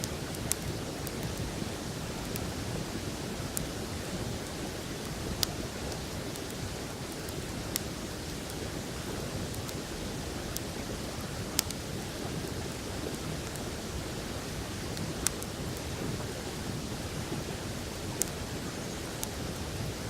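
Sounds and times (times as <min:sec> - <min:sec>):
campfire popping: 0:00.0 - 0:01.5, 0:04.4 - 0:13.9, 0:14.8 - 0:16.3.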